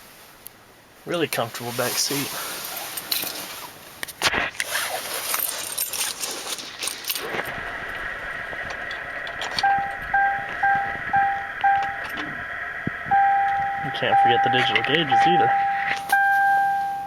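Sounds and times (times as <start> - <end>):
car keys jangling: 4.7 - 7.6, 15.5 - 17.0
car warning chime beeping: 9.6 - 17.0.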